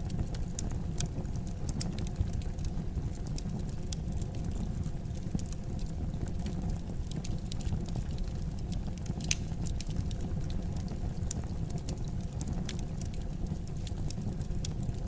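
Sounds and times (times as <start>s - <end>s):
fire crackling in fireplace: 0.0s - 15.0s.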